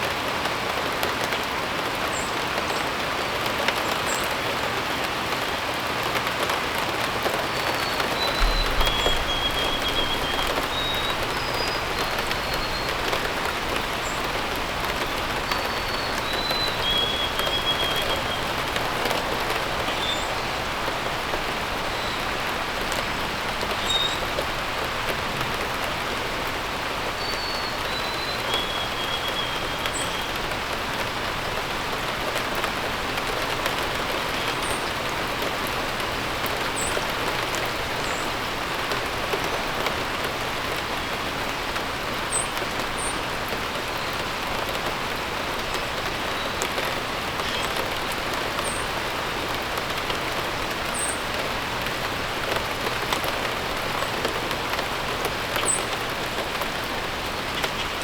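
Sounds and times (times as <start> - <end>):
steady rain falling: 0.0 - 58.0
bird chirps: 7.6 - 14.3
bird whistles: 7.8 - 13.0.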